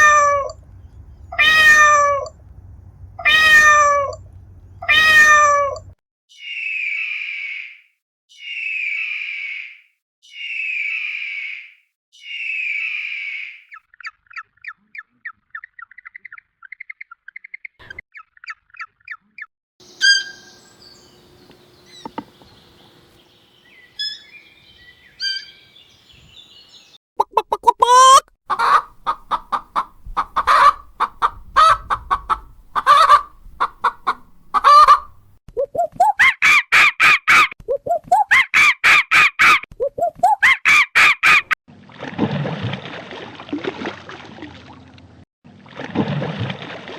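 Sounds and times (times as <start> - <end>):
bird chirping trill: 0.1 - 2.5, 3.1 - 19.2, 19.8 - 27.0
bird calls rising in pitch: 4.8 - 7.8, 8.4 - 13.6, 19.8 - 27.0
short bird chirps: 6.3 - 17.5, 19.8 - 27.0.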